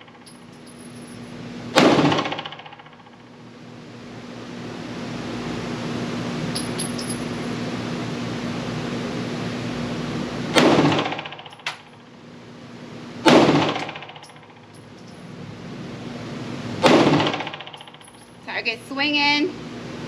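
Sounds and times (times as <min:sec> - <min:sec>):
pistol shots ringing indoors: 0:01.7 - 0:03.0, 0:10.5 - 0:11.8, 0:13.2 - 0:14.6, 0:16.8 - 0:18.1.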